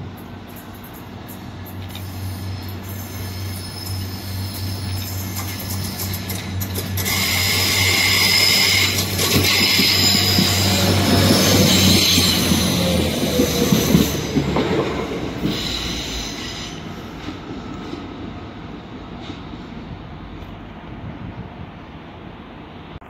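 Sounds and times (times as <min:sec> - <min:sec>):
train engines droning: 0:00.0 - 0:23.0
train wheels squealing: 0:00.6 - 0:18.0.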